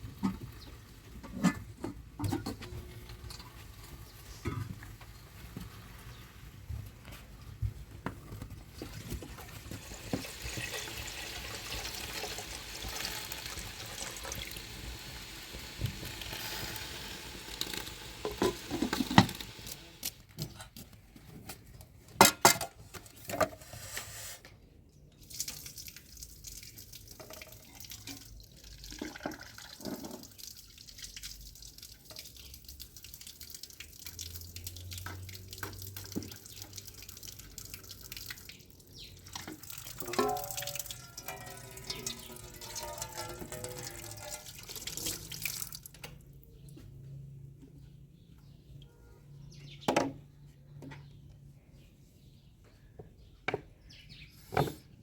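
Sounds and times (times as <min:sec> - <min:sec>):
water running and splashing: 0:08.8 - 0:20.0, 0:25.2 - 0:46.0.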